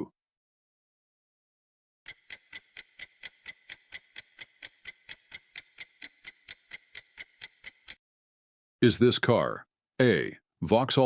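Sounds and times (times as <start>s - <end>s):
clock ticking: 2.1s - 8.0s.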